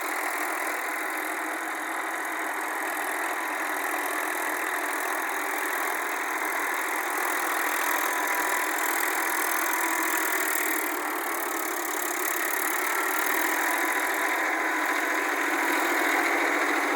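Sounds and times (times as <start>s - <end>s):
tractor diesel engine running: 0.0s - 16.9s.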